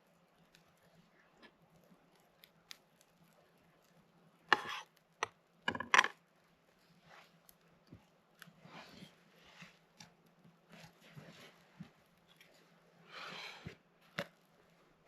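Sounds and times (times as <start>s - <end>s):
knife cutting on a board: 4.5s - 4.9s.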